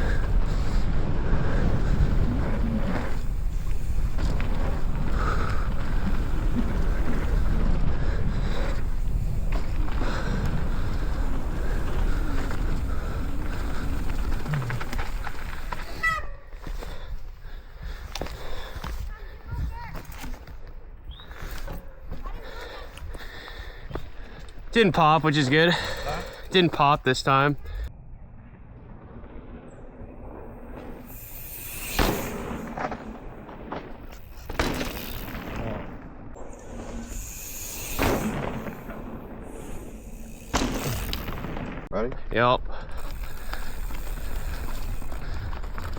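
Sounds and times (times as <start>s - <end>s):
wind buffeting microphone: 0.0s - 16.0s
mountain bike rumbling on dirt: 0.0s - 20.6s, 21.2s - 27.9s, 29.7s - 41.9s, 42.7s - 45.9s.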